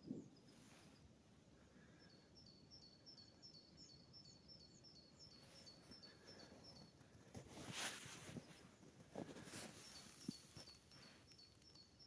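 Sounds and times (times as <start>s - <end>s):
brief rustle: 7.3s - 11.5s.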